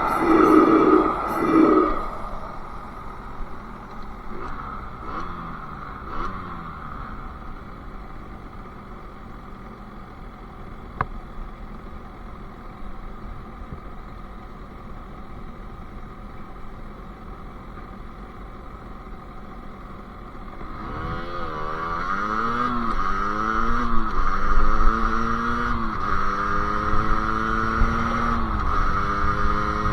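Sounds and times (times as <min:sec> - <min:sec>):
two-stroke engine running: 0:00.0 - 0:29.9.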